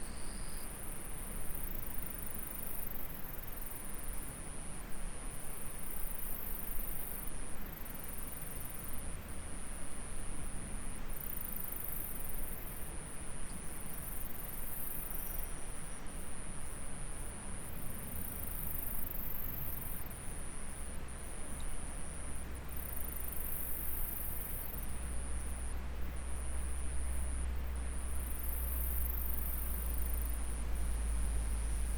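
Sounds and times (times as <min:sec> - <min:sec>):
insects trilling: 0:21.5 - 0:31.9.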